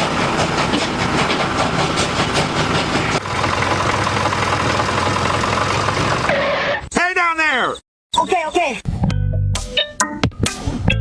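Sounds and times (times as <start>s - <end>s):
train clattering on rails: 0.0s - 6.3s.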